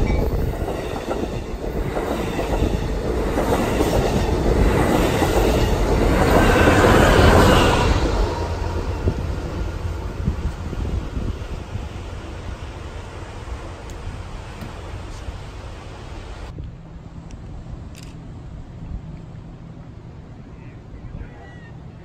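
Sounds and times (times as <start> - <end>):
train wheels rumbling on rails: 0.0 - 16.6.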